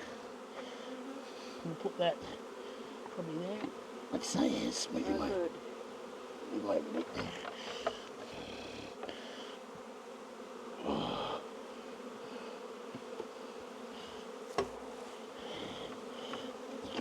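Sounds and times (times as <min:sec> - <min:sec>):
bees buzzing: 0:00.0 - 0:17.0
hive frames knocking: 0:06.9 - 0:08.3, 0:14.5 - 0:17.0.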